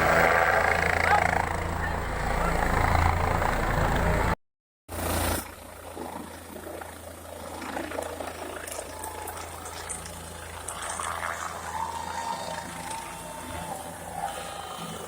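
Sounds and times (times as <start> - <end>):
low engine hum: 0.0 - 4.4.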